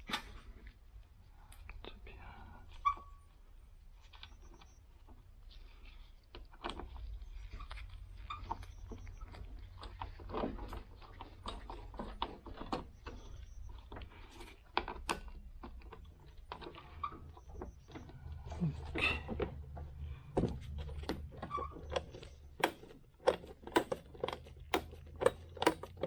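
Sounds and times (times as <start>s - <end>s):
clicks and knocks of parts handled: 18.9s - 26.0s.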